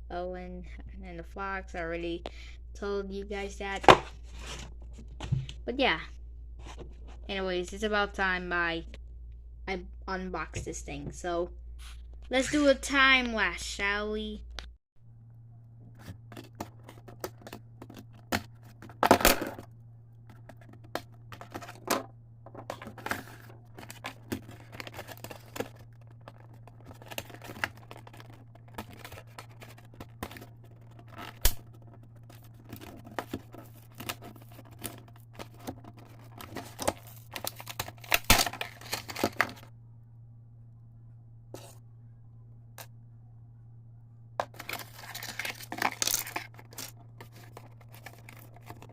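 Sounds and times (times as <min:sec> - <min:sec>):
steady low hum: 0:00.0 - 0:48.9
packaging rustling and tearing: 0:22.7 - 0:39.7, 0:44.4 - 0:48.9.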